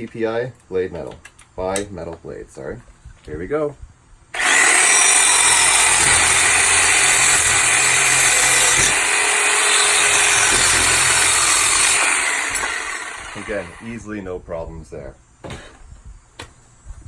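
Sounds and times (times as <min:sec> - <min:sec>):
reciprocating saw cutting metal: 0:04.4 - 0:13.9.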